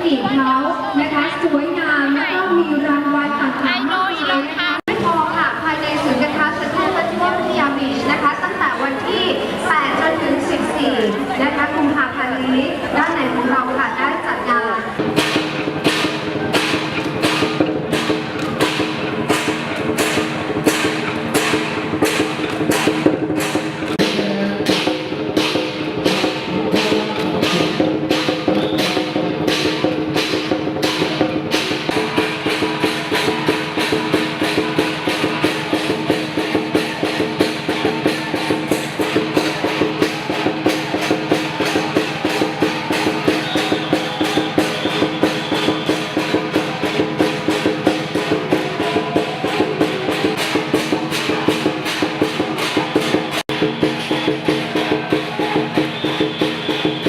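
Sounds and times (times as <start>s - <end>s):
drum beaten in rhythm: 14.9s - 57.0s.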